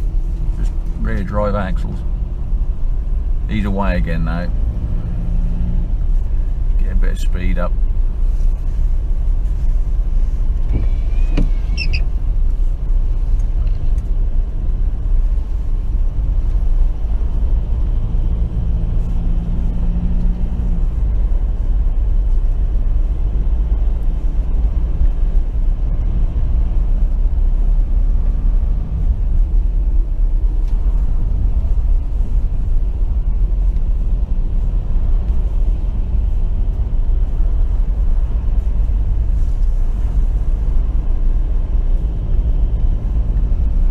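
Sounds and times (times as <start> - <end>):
vehicle engine and road rumble: 0.0 - 43.9
brief high squeak: 10.7 - 12.1.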